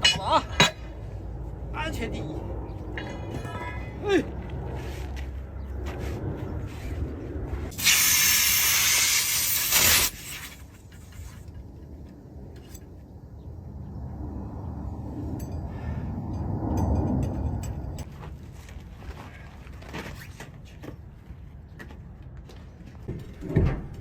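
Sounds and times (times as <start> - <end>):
compressed air hissing into tire: 7.7 - 11.3.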